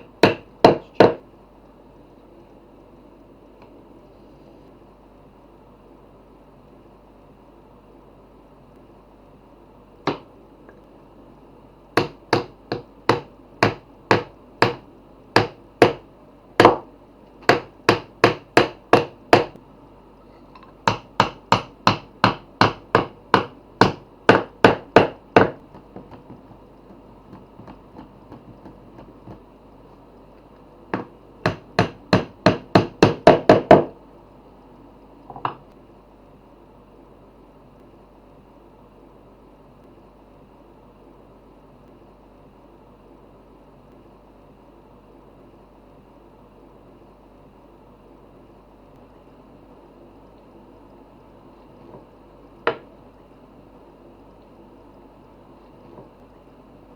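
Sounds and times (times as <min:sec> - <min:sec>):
hammer striking wood: 0:00.0 - 0:01.2, 0:10.1 - 0:10.3, 0:12.0 - 0:14.8, 0:15.4 - 0:16.0, 0:16.6 - 0:19.6, 0:20.8 - 0:29.4, 0:31.0 - 0:33.9, 0:52.7 - 0:52.9.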